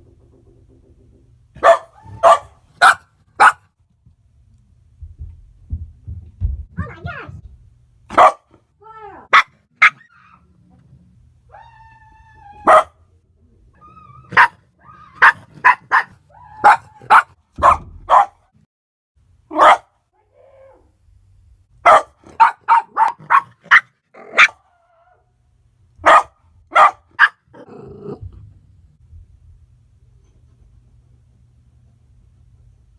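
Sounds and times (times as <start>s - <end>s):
dog barking sharply: 1.6s - 3.7s, 8.1s - 8.5s, 9.3s - 10.1s, 12.6s - 13.0s, 14.3s - 14.6s, 15.2s - 18.5s, 19.5s - 20.0s, 21.8s - 24.6s, 26.0s - 27.5s
knocking: 5.0s - 6.8s.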